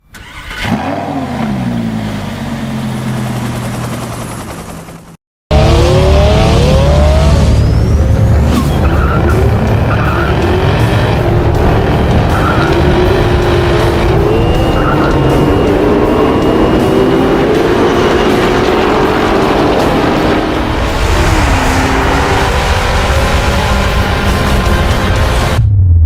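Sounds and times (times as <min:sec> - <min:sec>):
car engine revving: 0:05.5 - 0:25.6.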